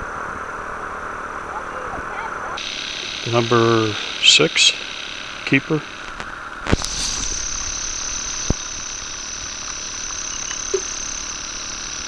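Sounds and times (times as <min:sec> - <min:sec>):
insects buzzing drone: 0:00.0 - 0:12.0
low steady hiss: 0:00.0 - 0:12.0
click: 0:06.0 - 0:07.0.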